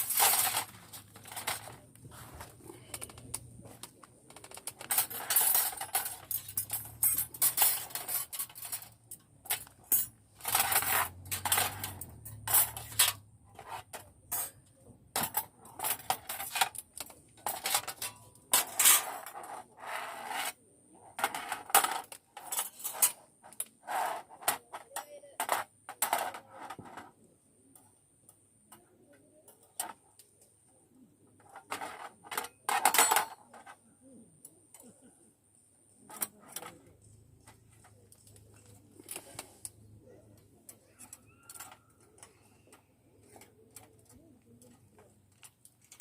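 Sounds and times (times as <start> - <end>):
metal parts clinking: 0.0 - 1.8, 2.4 - 14.6, 15.2 - 19.4, 21.2 - 23.2, 31.7 - 33.5, 43.2 - 46.0.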